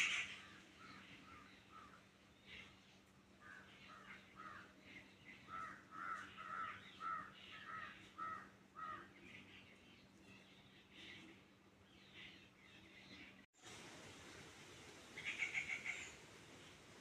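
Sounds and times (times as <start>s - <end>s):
bird calling in short calls: 0.0s - 2.6s, 15.2s - 16.2s.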